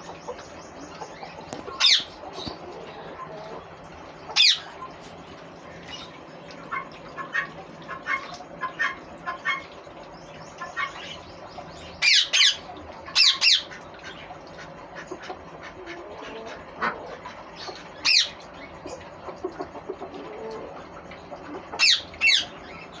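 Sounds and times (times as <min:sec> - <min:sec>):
parakeet screeching: 0:12.0 - 0:12.6.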